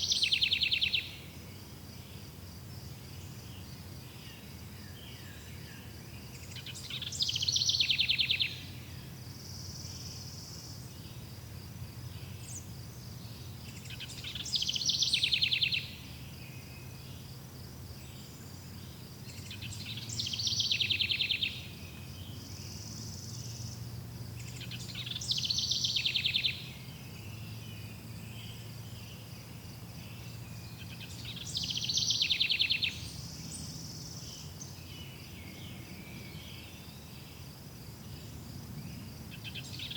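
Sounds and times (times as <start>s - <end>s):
songbird trilling: 0.0s - 1.2s, 6.3s - 8.7s, 13.4s - 16.0s, 19.3s - 21.7s, 24.4s - 27.6s, 30.2s - 35.1s
crickets chirring: 0.0s - 39.9s.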